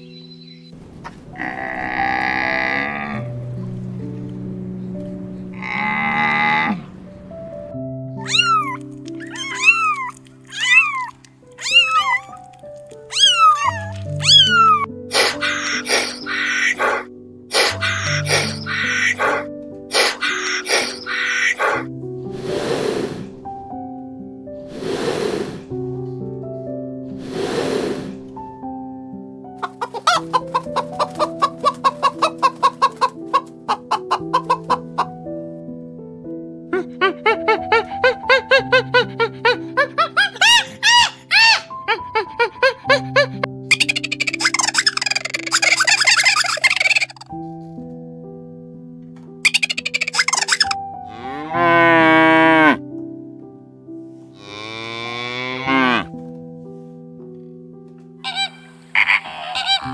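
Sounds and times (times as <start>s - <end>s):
soft piano music: 0.0s - 59.9s
harsh raspy animal calls: 1.4s - 3.4s, 5.6s - 6.9s, 8.2s - 12.4s, 13.0s - 23.3s, 29.6s - 35.1s, 38.6s - 47.4s, 49.4s - 52.8s, 58.2s - 59.9s
kittens mewing: 8.2s - 21.9s, 36.8s - 47.4s, 49.5s - 50.8s, 58.3s - 59.9s
chickens clucking: 29.6s - 35.2s, 39.8s - 47.3s, 49.4s - 50.8s, 58.3s - 59.9s.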